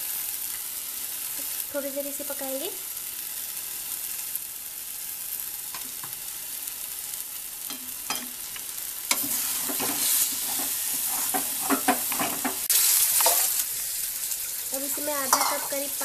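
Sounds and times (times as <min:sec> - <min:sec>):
food sizzling in oil: 0:00.0 - 0:16.0
spatula scraping a pan: 0:09.1 - 0:13.6, 0:14.9 - 0:16.0.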